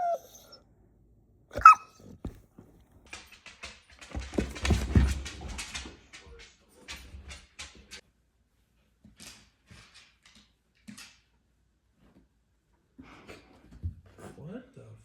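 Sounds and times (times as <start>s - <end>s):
puppy yipping: 0.0s - 0.6s, 1.6s - 2.1s.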